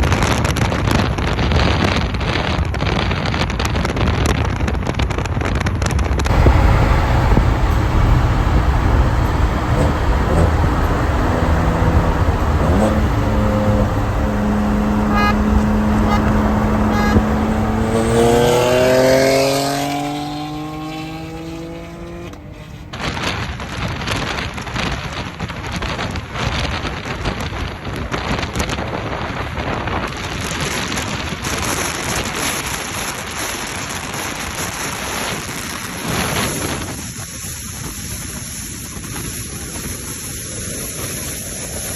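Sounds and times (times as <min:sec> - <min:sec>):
road and wind noise: 0:00.0 - 0:41.9
car engine accelerating: 0:06.2 - 0:23.3.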